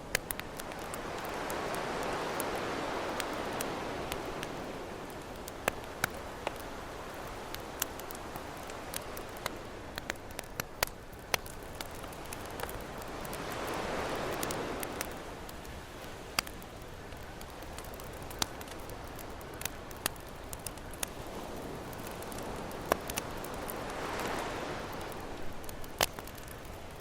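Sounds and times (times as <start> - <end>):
campfire crackling and popping: 0.0 - 27.0
ocean waves washing in: 21.1 - 26.0.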